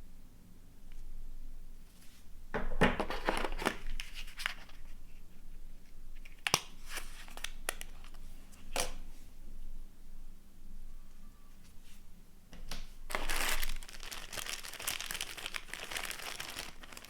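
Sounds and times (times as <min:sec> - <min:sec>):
packaging crinkling and rustling: 0:03.0 - 0:05.0, 0:05.9 - 0:08.9, 0:13.1 - 0:17.0.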